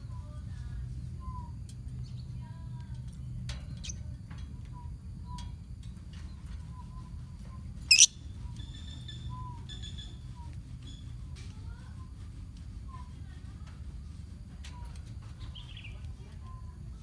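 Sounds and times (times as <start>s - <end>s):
birds chirping: 7.8s - 10.5s
shrill bird squawk: 7.9s - 8.1s.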